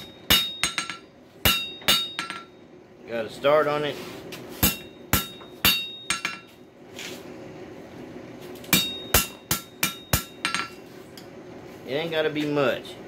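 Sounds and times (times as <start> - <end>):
hammer striking steel on anvil: 0.0 - 2.6, 4.6 - 6.6, 8.6 - 10.8.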